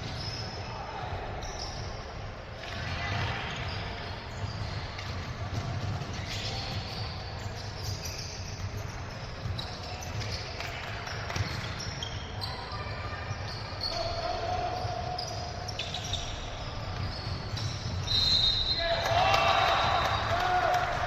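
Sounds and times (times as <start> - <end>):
sneakers squeaking: 0.0 - 21.0.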